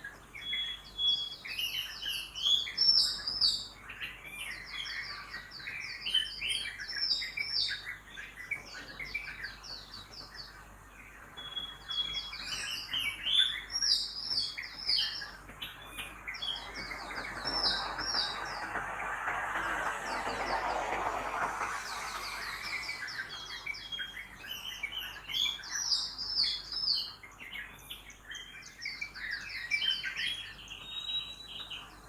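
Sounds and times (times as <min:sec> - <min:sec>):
small birds chirping: 0:11.3 - 0:32.0
street traffic noise: 0:16.0 - 0:24.0.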